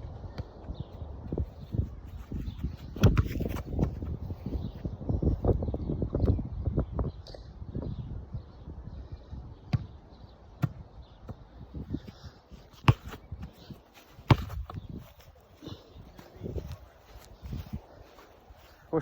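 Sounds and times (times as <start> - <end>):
ball kicked and bouncing: 2.4 - 4.3, 9.7 - 10.0, 10.6 - 11.4, 12.7 - 15.4.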